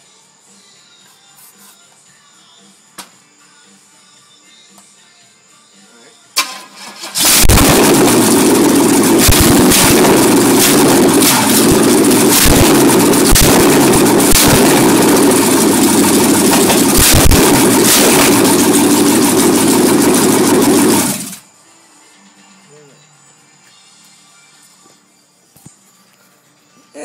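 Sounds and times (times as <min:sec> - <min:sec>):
engine starter click: 0:06.4 - 0:08.1
engine cranking and running: 0:06.4 - 0:21.4.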